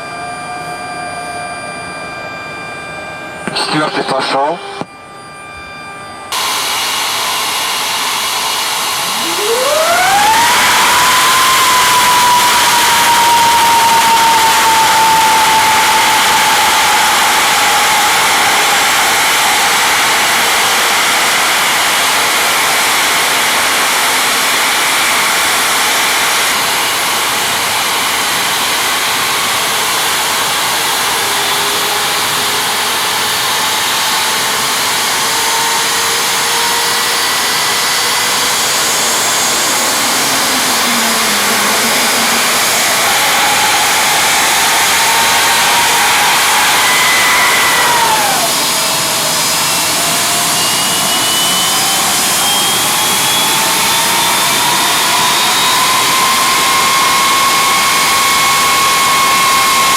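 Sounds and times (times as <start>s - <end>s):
faint whining tones: 0.0s - 20.9s, 33.3s - 51.8s
jet engine rush of air: 0.0s - 59.9s.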